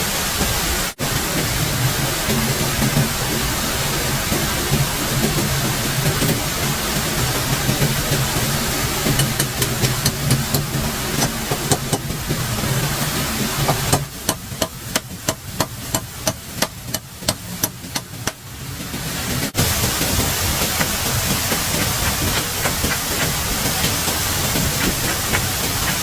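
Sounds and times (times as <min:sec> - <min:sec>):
steady hiss with faint ticks: 0:00.1 - 0:26.0
rapid sharp strikes: 0:20.2 - 0:26.0.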